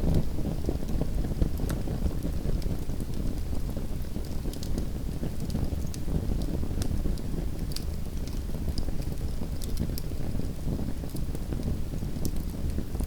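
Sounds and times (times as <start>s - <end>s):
fire crackles and pops: 0.0s - 13.0s.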